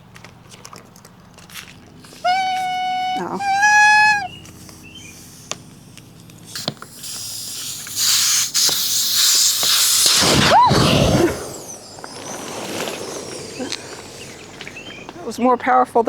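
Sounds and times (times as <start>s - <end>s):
air hissing out of valve: 2.2s - 4.3s, 6.5s - 15.3s
short squeak: 2.2s - 4.4s.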